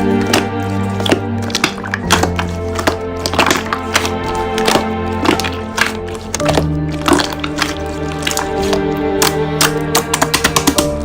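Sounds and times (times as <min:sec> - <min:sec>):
background music with held notes: 0:00.0 - 0:11.0
slime clicking and crackling: 0:00.0 - 0:11.0.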